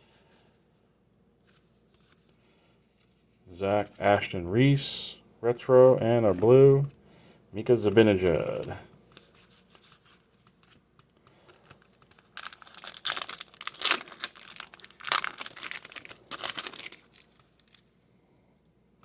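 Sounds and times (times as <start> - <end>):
wrapper tearing and crinkling: 11.4 - 17.9.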